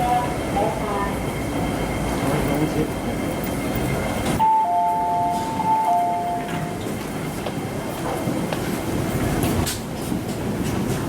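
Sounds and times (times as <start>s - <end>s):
electric train rumble: 0.0s - 11.0s
two-note electronic tone: 4.4s - 6.8s.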